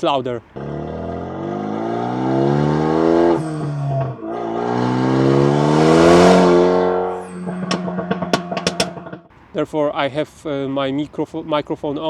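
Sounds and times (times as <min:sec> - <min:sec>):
car engine revving: 0:00.0 - 0:09.3
exhaust cracks: 0:00.0 - 0:10.6.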